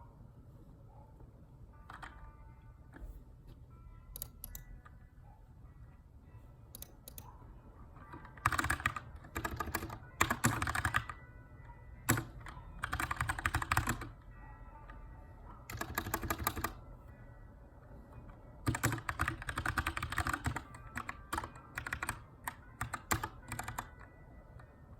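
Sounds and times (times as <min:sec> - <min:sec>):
typing on mechanical keyboard: 0:01.9 - 0:02.2, 0:08.0 - 0:11.2, 0:12.0 - 0:14.2, 0:15.6 - 0:16.8, 0:18.6 - 0:24.1.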